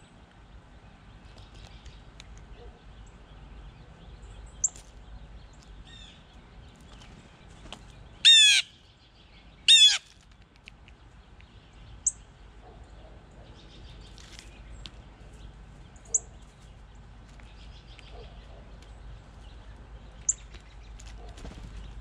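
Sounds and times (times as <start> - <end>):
bird loud calls: 8.2 - 8.8, 9.7 - 10.1.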